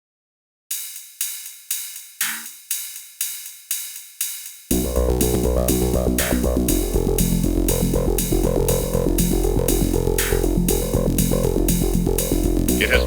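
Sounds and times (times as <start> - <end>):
bright hi-hat hits: 0.7 - 13.0
deep bass and chords: 4.7 - 13.0
horror instrumental music: 4.7 - 13.0.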